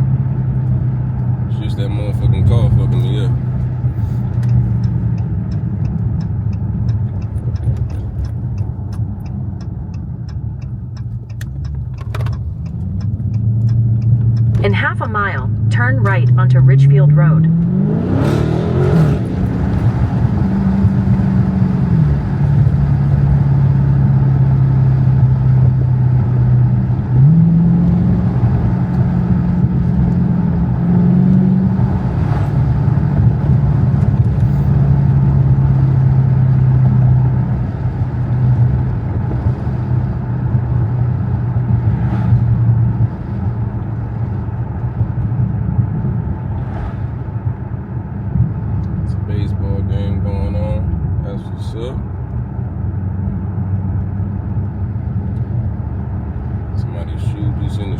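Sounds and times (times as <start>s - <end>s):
car engine drone: 0.0s - 57.9s.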